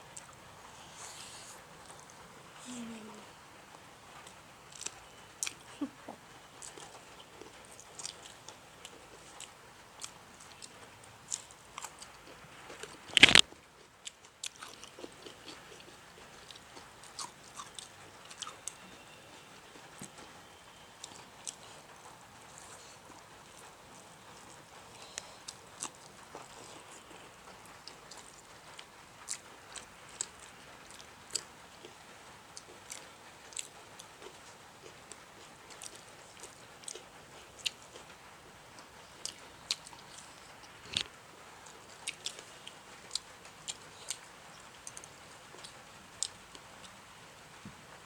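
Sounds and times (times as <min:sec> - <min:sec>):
people chewing food: 0:00.0 - 0:48.0
mouth clicks and smacks: 0:12.9 - 0:13.4.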